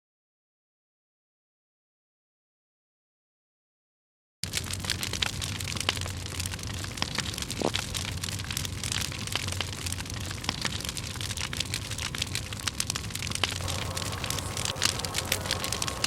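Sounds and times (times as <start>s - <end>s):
campfire crackling and popping: 4.4s - 16.0s.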